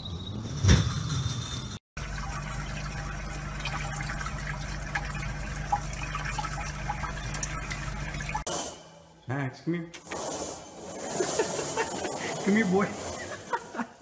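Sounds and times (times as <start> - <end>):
tap water running into basin: 2.0 - 8.5.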